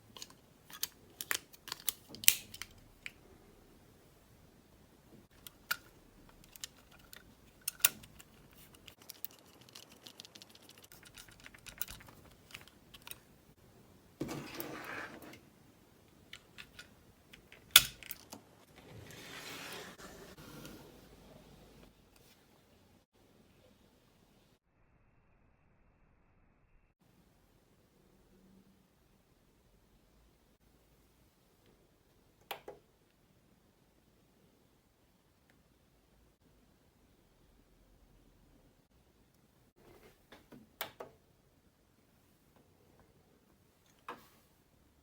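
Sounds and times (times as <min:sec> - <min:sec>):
plastic parts clicking: 0:00.0 - 0:03.2, 0:05.3 - 0:13.3, 0:16.2 - 0:18.4
rubbing or scraping noise: 0:14.2 - 0:15.5, 0:18.7 - 0:21.2.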